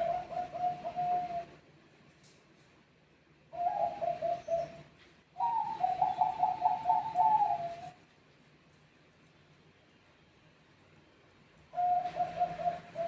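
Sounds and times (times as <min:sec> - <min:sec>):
dove cooing: 0:00.0 - 0:01.6, 0:03.5 - 0:08.0, 0:11.7 - 0:13.0.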